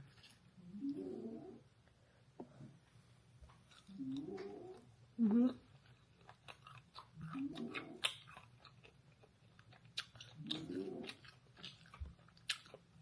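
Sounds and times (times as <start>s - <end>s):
mouth chewing crispy food: 3.7s - 13.0s.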